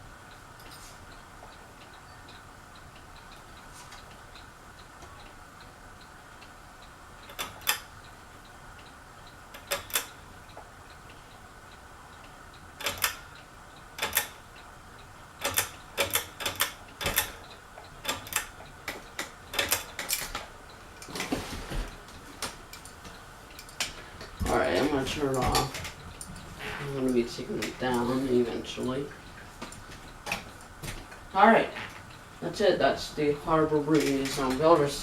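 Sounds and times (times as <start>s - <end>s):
ceiling fan humming: 0.0s - 35.0s
sharp clicks: 15.4s - 20.5s.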